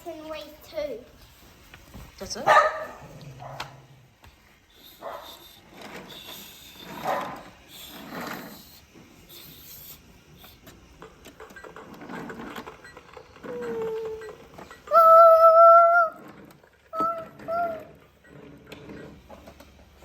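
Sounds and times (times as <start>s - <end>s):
toy vehicle sound effects: 4.7s - 10.7s, 11.5s - 19.2s.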